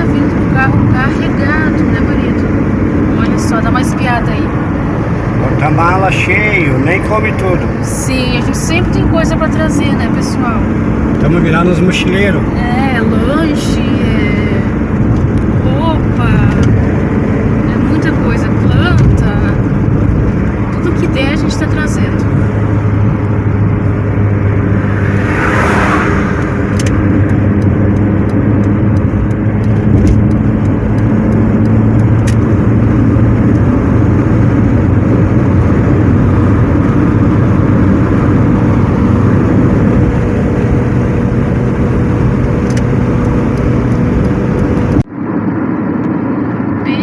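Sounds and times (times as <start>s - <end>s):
car engine and road noise drone: 0.0s - 47.0s
brief rushing sound: 24.6s - 27.2s.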